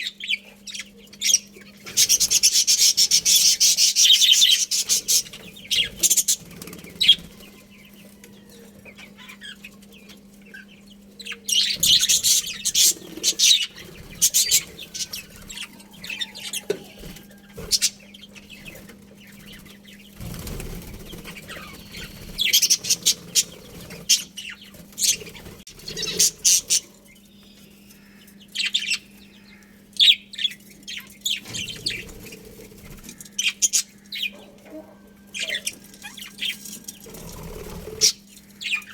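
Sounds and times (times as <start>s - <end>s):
budgerigars chirping: 0.0s - 38.9s
steady low hum: 0.0s - 38.9s
wings flapping: 1.9s - 7.7s, 11.8s - 26.8s.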